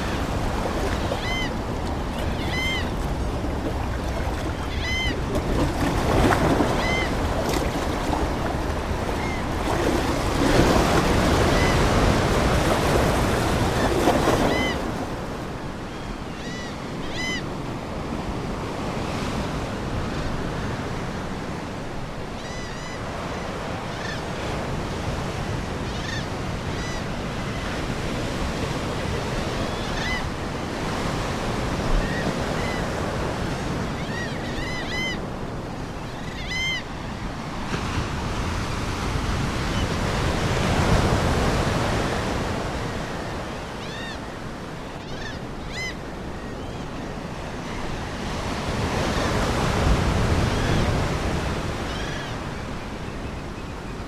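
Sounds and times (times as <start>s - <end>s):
seagulls calling: 0.0s - 17.6s, 33.7s - 37.6s, 42.9s - 48.4s, 50.2s - 54.0s
ocean waves washing ashore: 0.0s - 54.0s.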